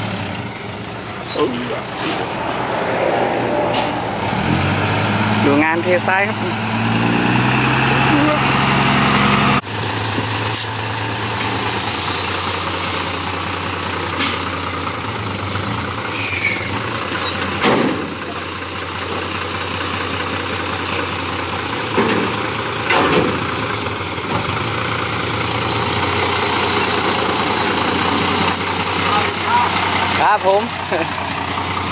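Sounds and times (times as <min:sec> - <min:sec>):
heavy machinery diesel engine: 0:00.0 - 0:31.9
short clunks: 0:17.2 - 0:18.2, 0:21.9 - 0:23.4.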